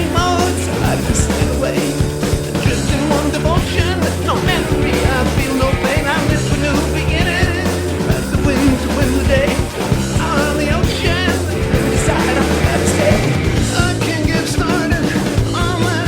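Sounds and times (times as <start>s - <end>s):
hard rock song: 0.0s - 16.0s.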